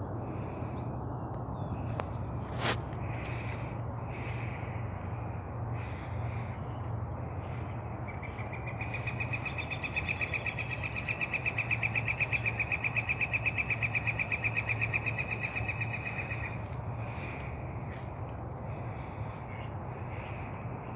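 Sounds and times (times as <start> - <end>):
steady low hum: 0.0 - 20.9
bird trilling: 8.1 - 16.6.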